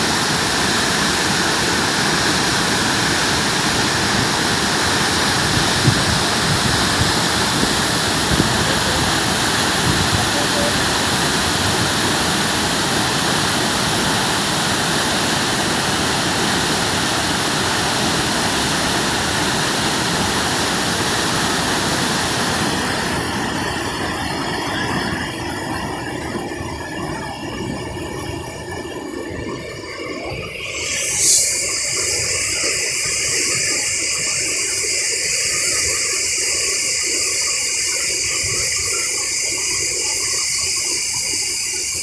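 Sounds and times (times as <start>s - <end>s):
waterfall roaring: 0.0s - 26.7s.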